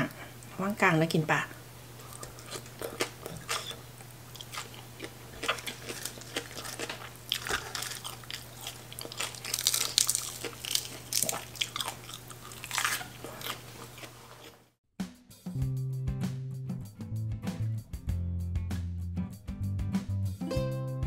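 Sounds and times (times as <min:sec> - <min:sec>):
close chewing and crunching: 0:02.0 - 0:14.7.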